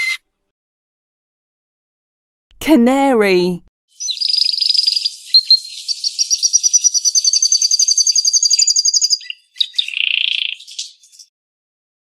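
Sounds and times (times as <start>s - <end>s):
canary singing: 3.9s - 11.3s.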